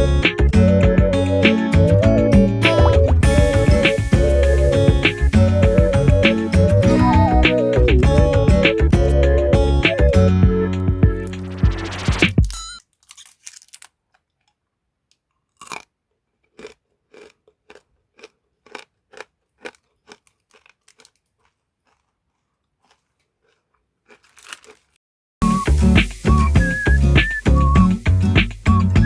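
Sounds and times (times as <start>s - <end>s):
hard candy crunching: 12.9s - 25.0s.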